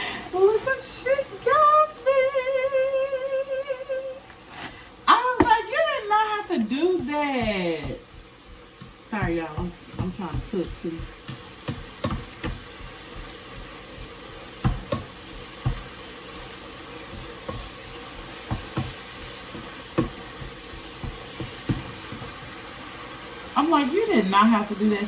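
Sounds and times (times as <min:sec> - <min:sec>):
kitchen knocks and clatters: 0:06.8 - 0:16.5, 0:17.1 - 0:22.4.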